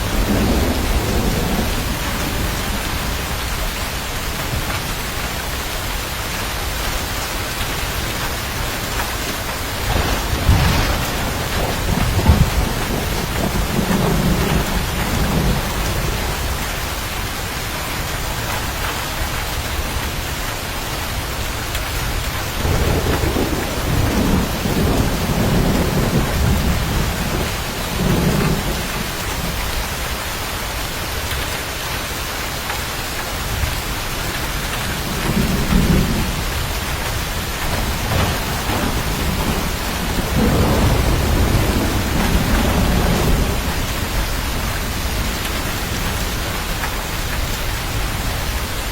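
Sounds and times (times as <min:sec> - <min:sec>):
thunder rumbling: 0:00.0 - 0:06.0, 0:06.8 - 0:20.2, 0:21.2 - 0:30.2, 0:33.5 - 0:48.9
heavy rain: 0:00.0 - 0:48.9.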